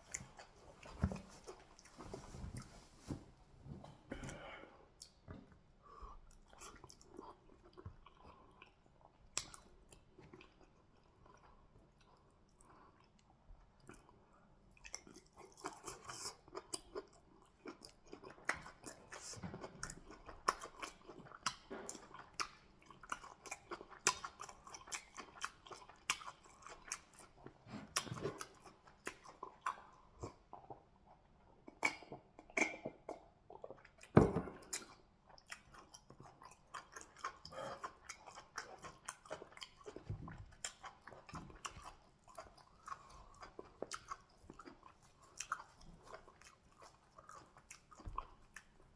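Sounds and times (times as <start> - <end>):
chewing and wet mouth sounds: 0.0 - 3.1, 4.1 - 48.9.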